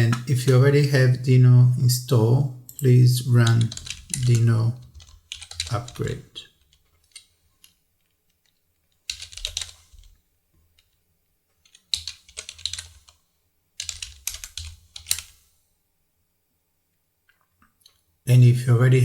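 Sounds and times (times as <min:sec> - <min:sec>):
typing on computer keyboard: 0:03.4 - 0:07.8, 0:09.0 - 0:10.2, 0:11.6 - 0:13.2, 0:13.8 - 0:15.3.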